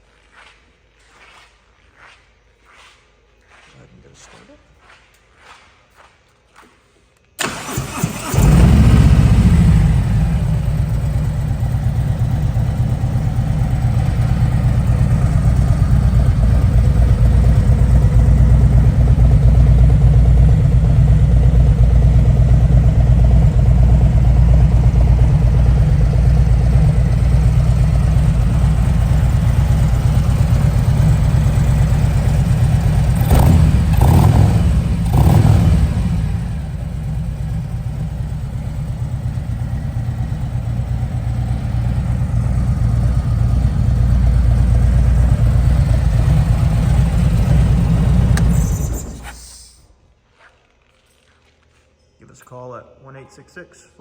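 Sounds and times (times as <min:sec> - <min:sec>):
starter motor cranking: 0:07.4 - 0:11.2, 0:45.3 - 0:49.5
motorcycle engine idling: 0:07.4 - 0:49.7.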